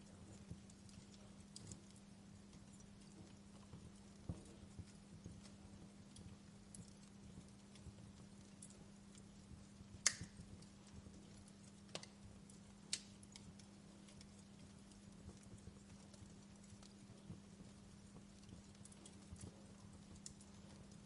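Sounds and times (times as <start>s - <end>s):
wood fire crackling: 0.0s - 21.0s
sharp pops of fire: 9.8s - 10.7s, 12.8s - 13.4s.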